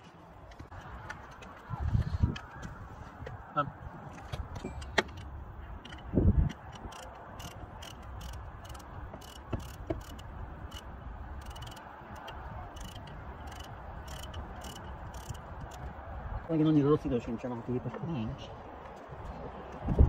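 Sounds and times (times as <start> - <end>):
ratchet clicking: 4.8 - 15.8.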